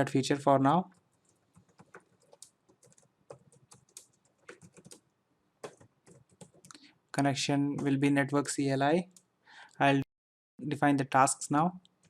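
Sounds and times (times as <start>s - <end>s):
faint keyboard typing: 0.8s - 6.9s.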